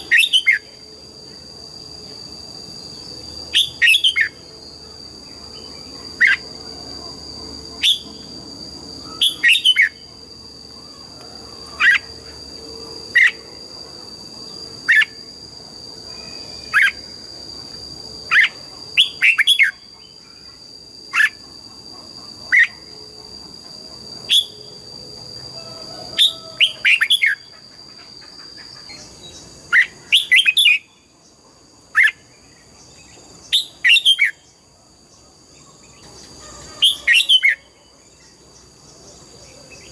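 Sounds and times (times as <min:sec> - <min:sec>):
bird chirping: 0:09.0 - 0:12.4.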